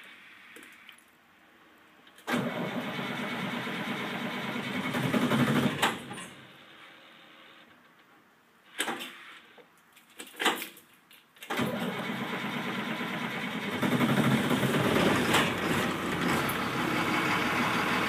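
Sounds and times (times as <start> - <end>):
diesel engine starting and running: 2.3 - 6.5, 11.6 - 18.0.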